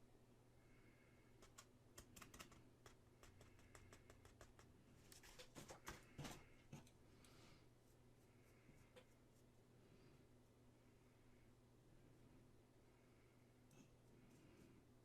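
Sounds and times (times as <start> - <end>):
light clicks and taps: 1.4 - 7.4.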